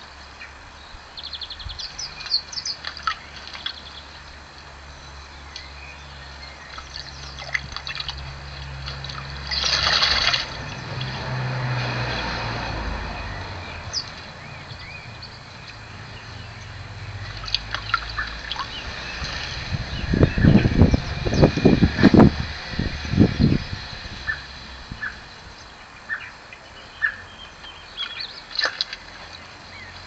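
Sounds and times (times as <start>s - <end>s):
bird splashing water: 2.0s - 22.8s, 27.0s - 30.0s.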